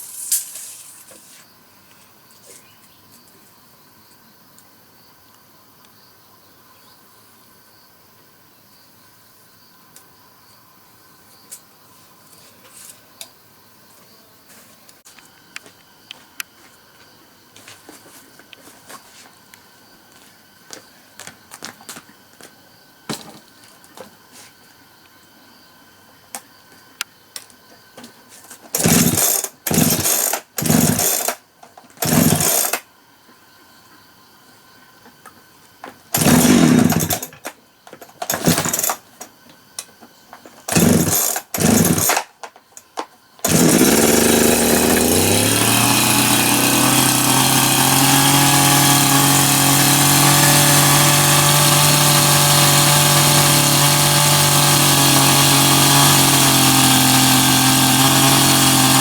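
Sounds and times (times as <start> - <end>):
power tool motor humming: 28.8 - 31.3, 32.0 - 32.8, 36.2 - 37.3, 40.7 - 42.2, 43.4 - 59.0.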